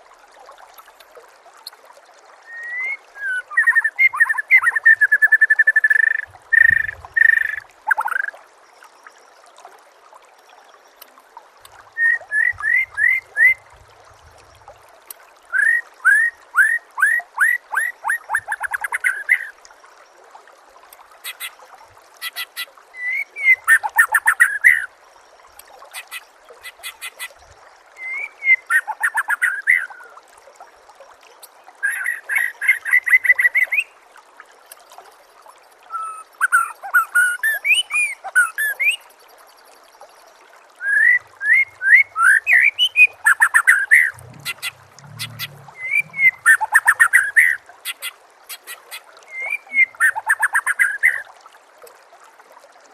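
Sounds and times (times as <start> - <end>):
songbird singing: 40.8 - 48.1.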